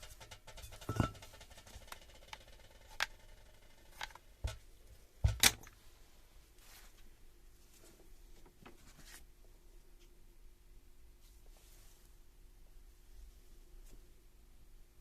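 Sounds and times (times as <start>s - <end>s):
tools clicking and knocking on workbench: 0.0s - 2.1s, 4.0s - 5.7s.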